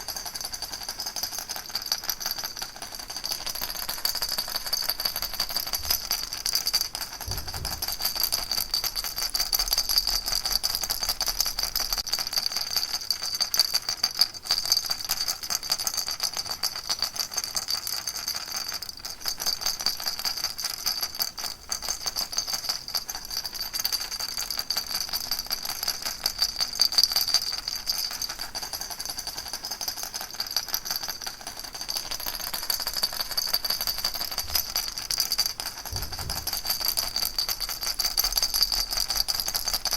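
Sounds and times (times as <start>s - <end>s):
baby rattle shaking: 0.0s - 39.9s.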